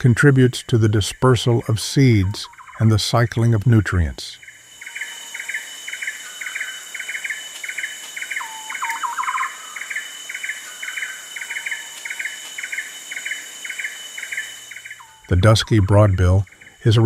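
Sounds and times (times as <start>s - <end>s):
high insect drone: 0.0s - 17.0s
bird repeating short call: 8.4s - 9.9s.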